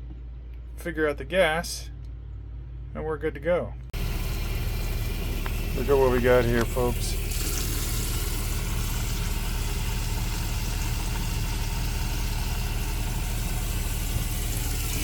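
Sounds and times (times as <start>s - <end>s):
water heater burner humming: 3.9s - 15.0s.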